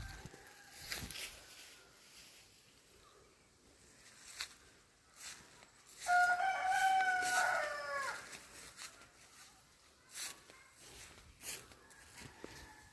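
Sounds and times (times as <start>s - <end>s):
rooster crowing: 0.0s - 2.0s, 5.9s - 8.6s, 11.8s - 12.9s.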